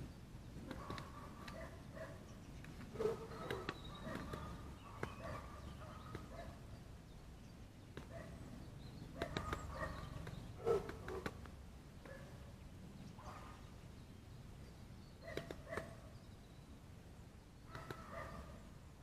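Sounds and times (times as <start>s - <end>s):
low bird calls: 0.0s - 19.0s
sharp taps: 9.2s - 12.2s.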